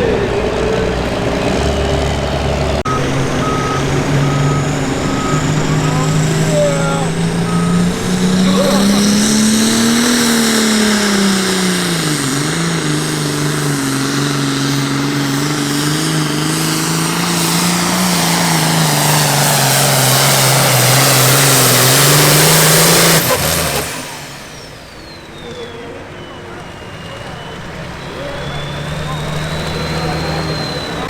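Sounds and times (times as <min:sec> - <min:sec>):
diesel engine at full throttle: 0:00.0 - 0:31.0
high turbo whistle: 0:02.9 - 0:12.9, 0:16.5 - 0:31.0.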